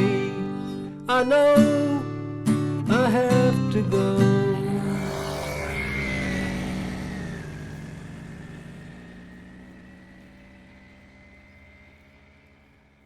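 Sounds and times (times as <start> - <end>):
moped engine whining: 3.8 - 13.0.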